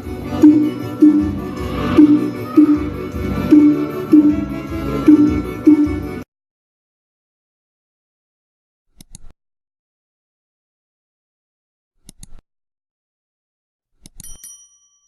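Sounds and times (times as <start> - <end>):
bell-like ding: 14.2 - 15.0.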